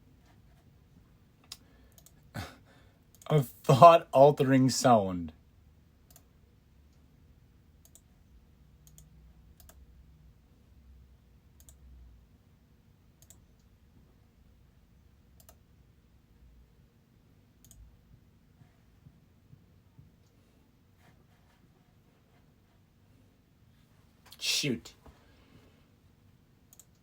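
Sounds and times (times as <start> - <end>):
small sharp clicks: 1.4 - 2.2, 6.1 - 6.3, 7.8 - 8.1, 8.8 - 9.8, 11.6 - 11.8, 13.2 - 13.7, 15.4 - 15.6, 26.7 - 27.0.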